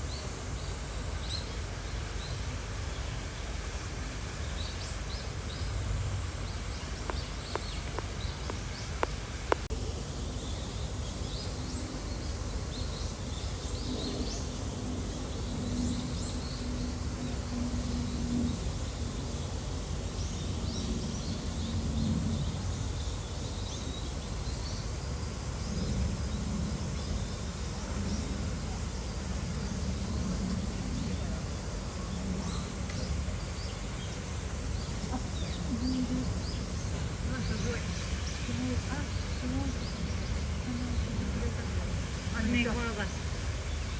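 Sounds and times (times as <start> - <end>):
murmur of distant voices: 27.7 - 43.9.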